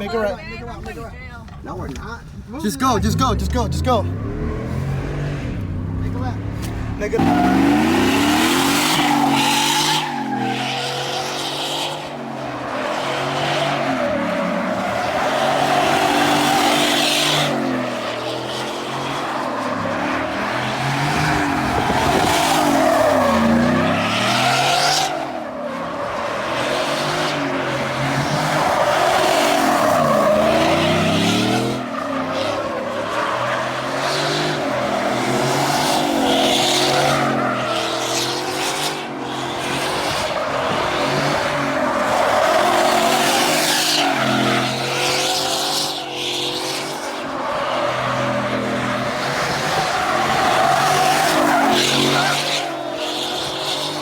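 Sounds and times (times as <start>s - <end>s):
road noise: 0.0s - 54.0s
car engine accelerating: 1.6s - 11.7s.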